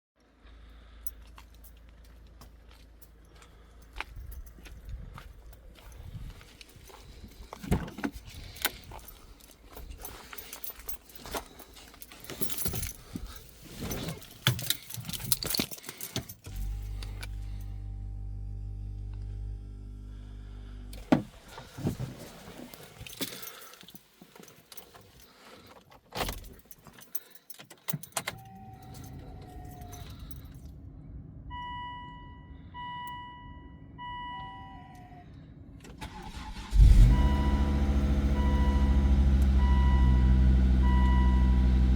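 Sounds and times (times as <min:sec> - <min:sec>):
keys jangling and clicking: 0:01.0 - 0:17.4, 0:22.7 - 0:30.8
car engine cranking and starting: 0:07.4 - 0:23.5, 0:35.5 - 0:41.9
short beeps: 0:31.5 - 0:35.2, 0:39.6 - 0:41.6.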